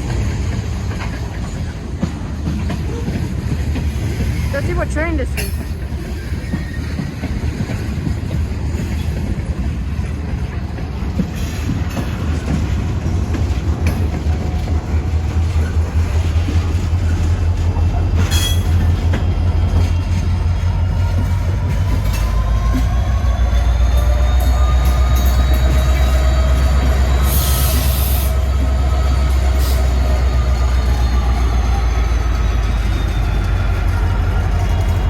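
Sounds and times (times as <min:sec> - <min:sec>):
train wheels rumbling on rails: 0:00.0 - 0:35.0
wheel squeal: 0:06.0 - 0:07.2, 0:18.2 - 0:19.0, 0:22.1 - 0:28.4.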